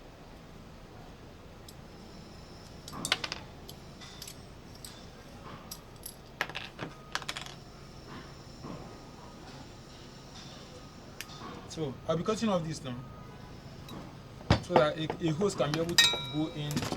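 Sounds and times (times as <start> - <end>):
metal parts and tools clattering: 2.8 - 7.6, 13.9 - 16.9.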